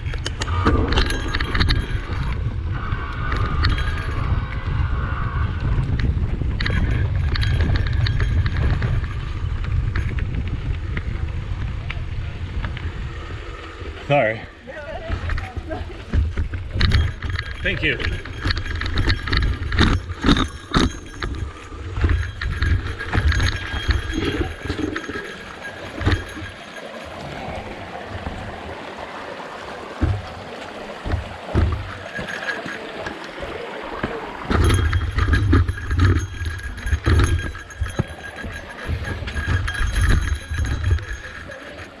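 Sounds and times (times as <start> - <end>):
bike rattling over rocks: 0.0 - 13.0, 14.0 - 42.0
wind buffeting microphone: 0.0 - 42.0.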